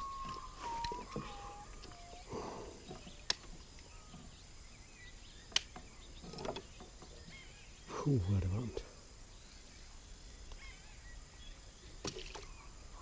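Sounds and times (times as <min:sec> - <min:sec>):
bird whistling falling notes: 0:00.0 - 0:02.4.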